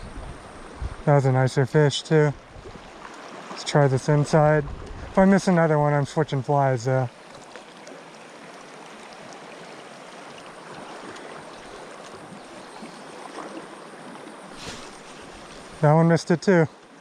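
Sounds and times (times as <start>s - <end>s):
river water rushing: 7.1s - 17.0s.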